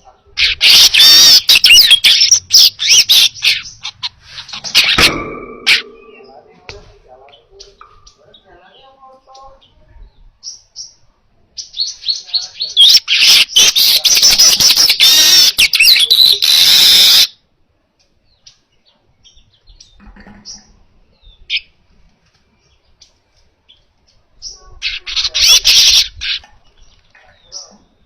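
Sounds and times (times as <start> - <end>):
weaver bird singing: 0.0 - 5.0, 7.3 - 11.0, 11.6 - 17.3
buzzing bird chatter: 0.4 - 6.5.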